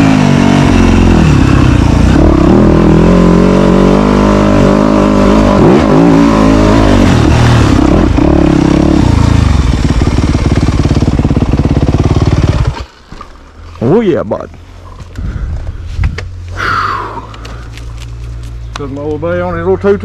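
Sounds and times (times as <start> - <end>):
dirt bike engine revving: 0.0 - 12.8.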